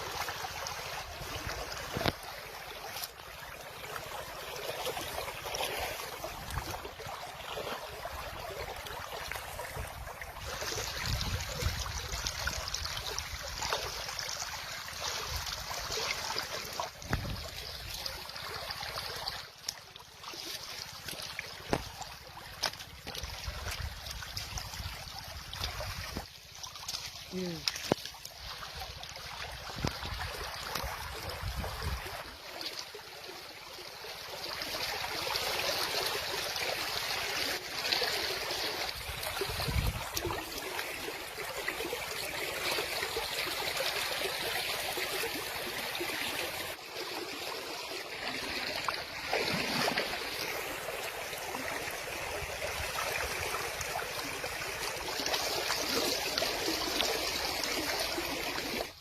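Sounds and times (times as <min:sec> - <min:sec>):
river water flowing over stones: 0:00.0 - 0:59.0.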